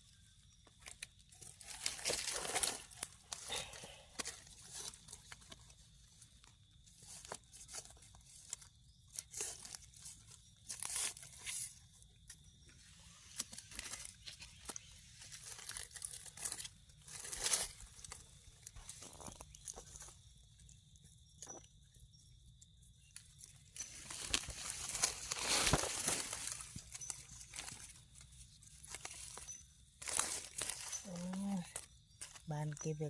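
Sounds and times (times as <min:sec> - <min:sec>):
dry leaves rustling and crunching: 0:00.8 - 0:11.8, 0:13.3 - 0:20.1, 0:23.2 - 0:32.9.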